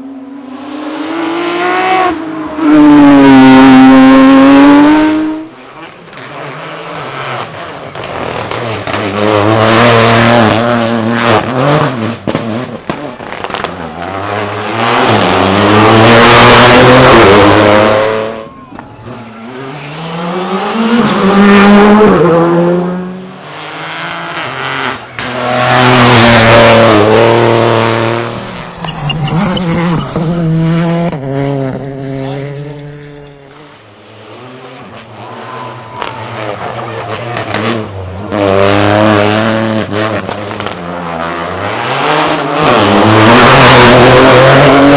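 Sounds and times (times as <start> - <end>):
rally car engine revving: 0.0 - 44.9
tyre squeal: 28.5 - 30.4.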